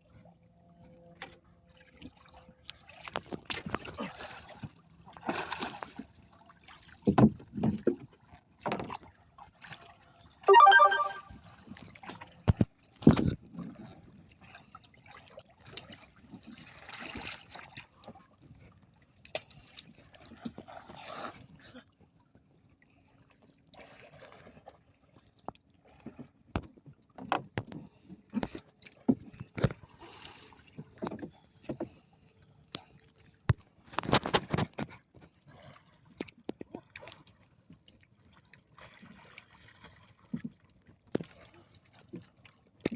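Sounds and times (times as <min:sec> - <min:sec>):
knocks and bumps on boat: 0:07.0 - 0:09.0.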